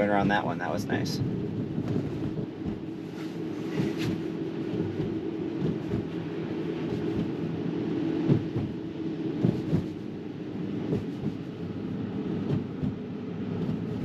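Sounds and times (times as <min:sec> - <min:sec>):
road and tyre rumble in car: 0:00.0 - 0:14.0
suspension knocks: 0:08.2 - 0:08.8, 0:12.3 - 0:13.0.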